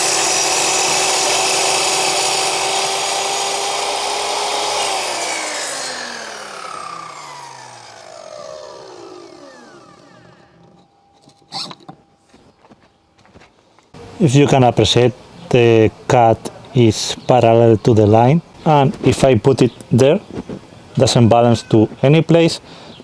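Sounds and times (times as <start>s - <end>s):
saw blade winding down: 0.0s - 10.8s
mitre saw whining: 0.0s - 11.8s.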